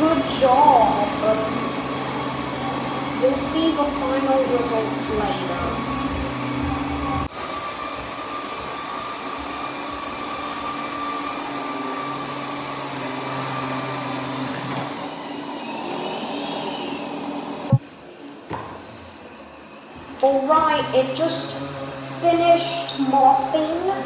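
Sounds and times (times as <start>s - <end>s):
robot vacuum whirring: 0.0s - 17.8s.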